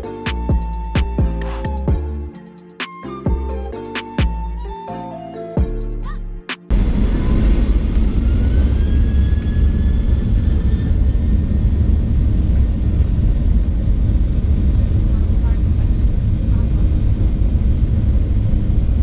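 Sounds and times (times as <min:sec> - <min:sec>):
background music: 0:00.0 - 0:06.7
jet engines spooling up: 0:06.7 - 0:14.2.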